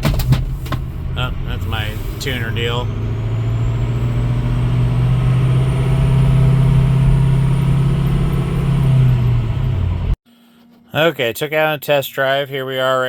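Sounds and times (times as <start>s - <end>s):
diesel engine running: 0.0s - 10.2s.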